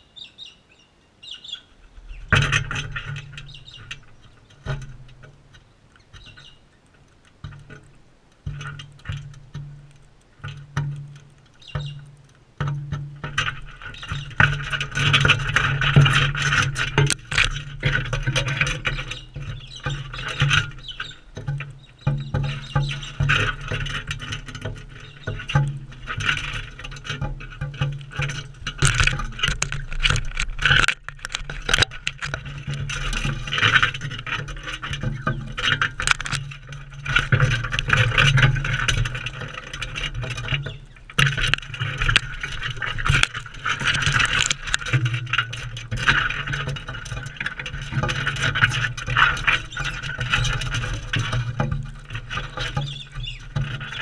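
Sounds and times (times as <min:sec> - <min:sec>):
birds squeaking: 0:00.0 - 0:02.4, 0:03.3 - 0:04.7, 0:05.5 - 0:07.0, 0:11.5 - 0:12.1, 0:13.8 - 0:14.4, 0:18.8 - 0:23.2, 0:24.9 - 0:25.5, 0:40.6 - 0:41.1, 0:52.4 - 0:54.0
beaks pecking and scraping seed: 0:01.2 - 0:54.0.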